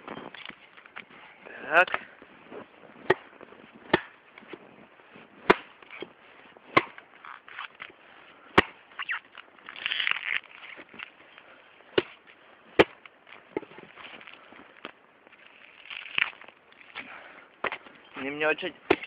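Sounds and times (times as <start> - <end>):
hatchet chopping log: 3.0 - 3.3, 3.9 - 4.6, 5.4 - 6.1, 6.7 - 7.0, 8.6 - 8.8, 11.9 - 12.2, 12.8 - 13.0, 18.8 - 19.0.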